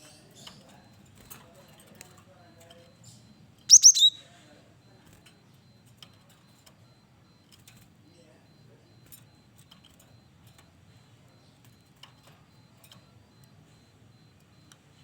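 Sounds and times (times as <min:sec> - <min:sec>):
faint bird chirps: 0:00.0 - 0:05.8
bird call with sharp notes: 0:03.7 - 0:04.2.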